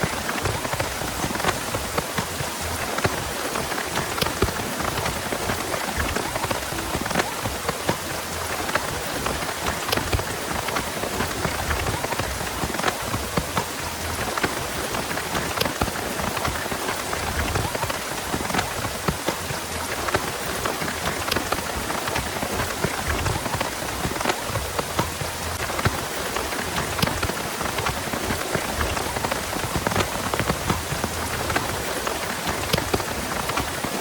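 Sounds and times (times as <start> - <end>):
heavy rain falling: 0.0 - 34.0.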